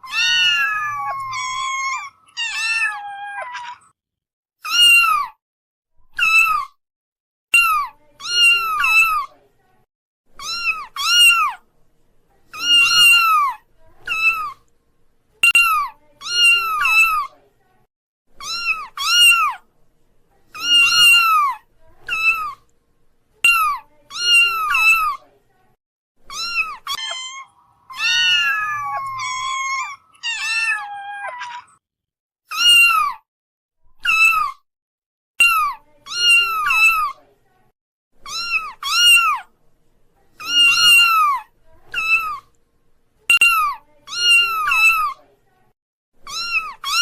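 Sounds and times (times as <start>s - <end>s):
kitten meowing: 0.0s - 3.9s, 4.7s - 5.4s, 6.2s - 6.7s, 10.4s - 11.6s, 12.6s - 14.6s, 18.4s - 19.6s, 20.6s - 22.6s, 26.3s - 31.8s, 32.5s - 33.2s, 34.0s - 34.6s, 38.2s - 39.4s, 40.4s - 42.4s, 46.3s - 47.0s.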